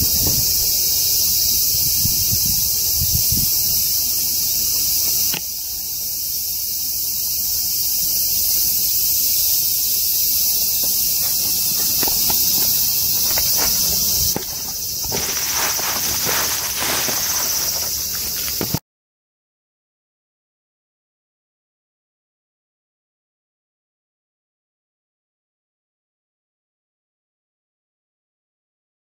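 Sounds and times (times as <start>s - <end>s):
insects shrilling: 0.0s - 18.8s.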